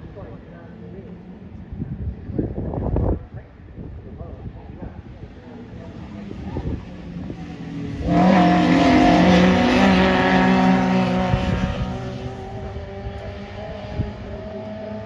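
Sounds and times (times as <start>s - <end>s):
race car engine at speed: 5.0s - 15.0s.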